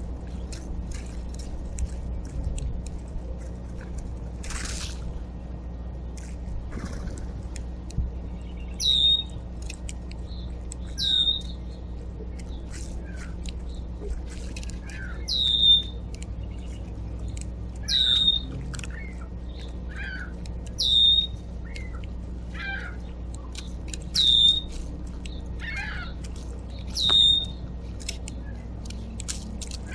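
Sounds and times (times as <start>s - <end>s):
soft bird chirps: 8.0s - 14.1s, 14.7s - 29.2s
songbird high squeaky call: 8.5s - 9.4s, 10.9s - 11.6s, 14.9s - 16.0s, 17.8s - 19.2s, 19.9s - 21.9s, 24.1s - 24.7s, 26.8s - 27.6s.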